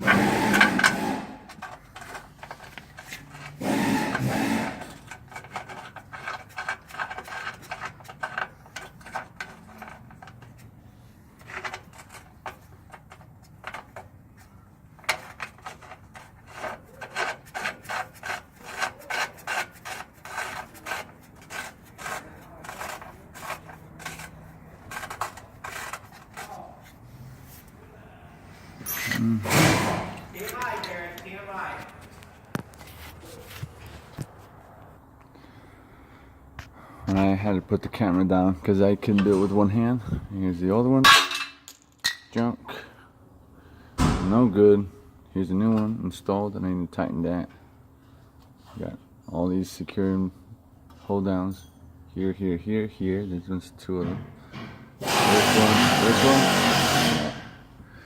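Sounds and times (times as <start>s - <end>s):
metal tools scraping: 0.0s - 27.8s, 28.7s - 32.2s, 55.0s - 57.5s.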